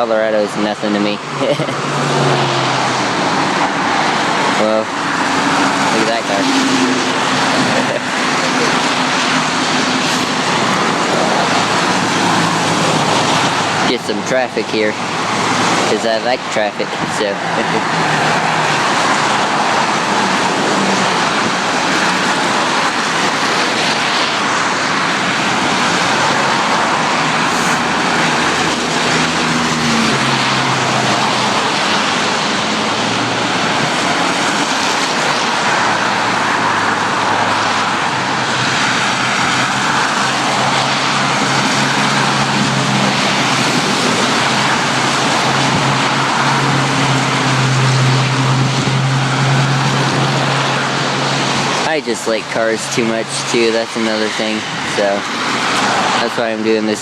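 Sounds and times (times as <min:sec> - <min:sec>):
low hum of engines: 0:00.0 - 0:57.0
tyre noise from cars: 0:00.0 - 0:57.0.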